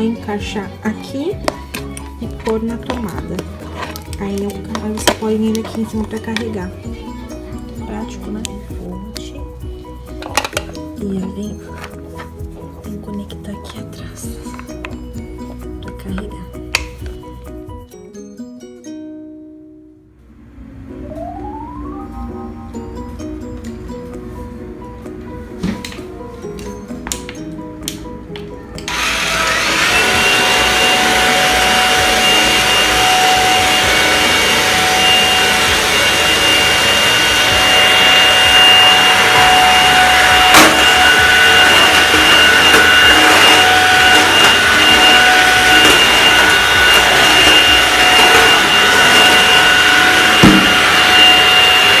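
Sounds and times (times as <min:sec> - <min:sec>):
vacuum cleaner motor whine: 0:28.8 - 0:52.0
suction air rushing: 0:28.9 - 0:52.0.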